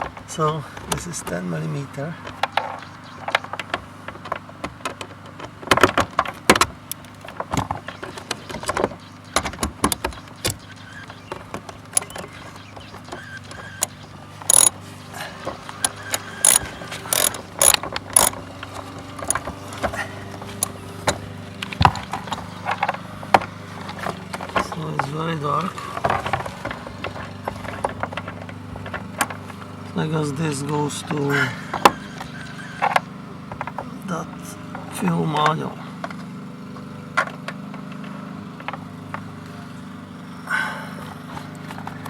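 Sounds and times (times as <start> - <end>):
tool rattling: 11.9 - 12.4, 13.6 - 14.8, 15.8 - 18.4, 19.2 - 19.5
ratchet wrench clicking: 12.0 - 12.3, 13.8 - 14.7, 15.8 - 18.4, 19.2 - 19.4.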